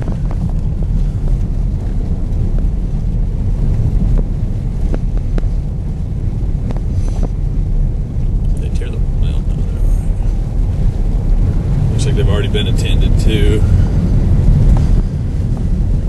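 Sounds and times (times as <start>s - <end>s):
vehicle driving rumble: 0.0s - 16.0s
wind noise: 0.0s - 16.0s.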